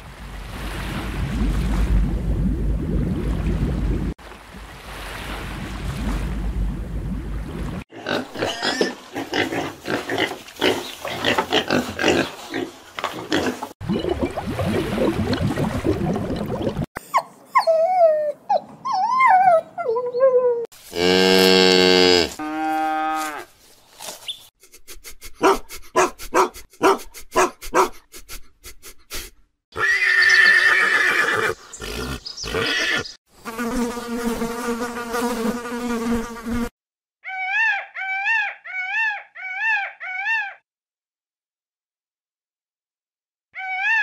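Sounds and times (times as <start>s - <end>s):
pitched animal calls: 37.2s - 40.6s, 43.6s - 44.0s.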